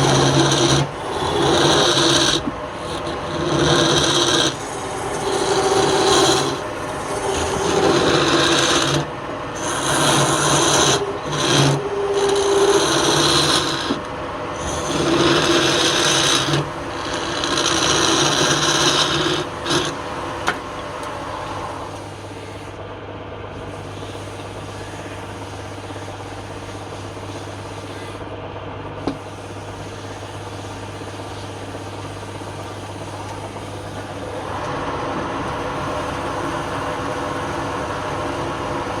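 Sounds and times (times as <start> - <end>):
tool scraping spinning wood: 0.0 - 20.8
lathe motor humming: 0.0 - 22.6, 29.0 - 39.0.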